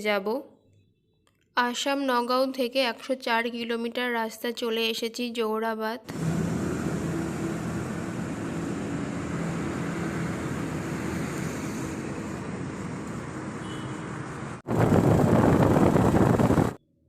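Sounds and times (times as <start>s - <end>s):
loud rushing noise: 6.1s - 16.8s
motorcycle engine hum: 6.1s - 16.8s
road and traffic noise: 6.1s - 16.8s.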